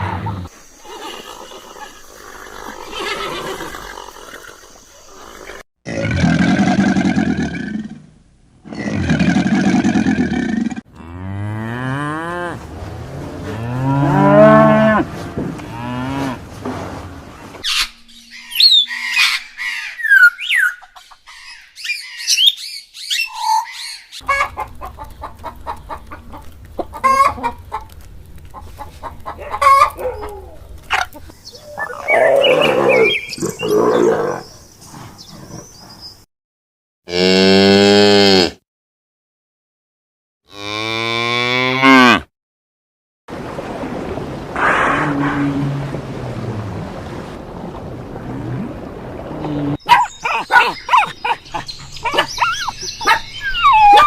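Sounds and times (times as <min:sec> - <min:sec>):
cattle mooing: 0:10.9 - 0:16.8, 0:40.5 - 0:42.2
chickens clucking: 0:20.2 - 0:21.3, 0:24.2 - 0:32.1.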